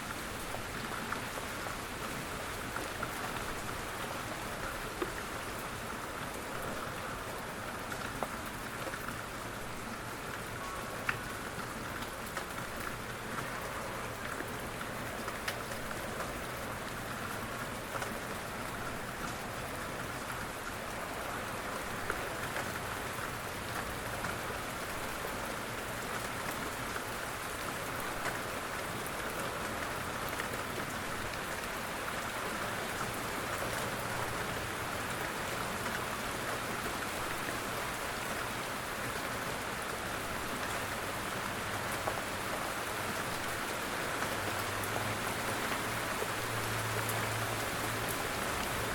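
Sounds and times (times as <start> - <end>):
steady rain hiss: 0.0 - 48.9
raindrop ticks: 10.3 - 18.4.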